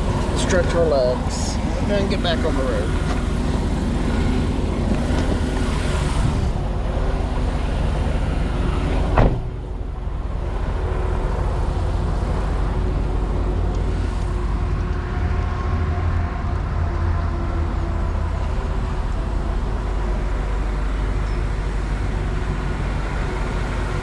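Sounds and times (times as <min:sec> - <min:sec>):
truck engine rumbling: 0:00.0 - 0:24.0
sharp knock: 0:09.2 - 0:09.6.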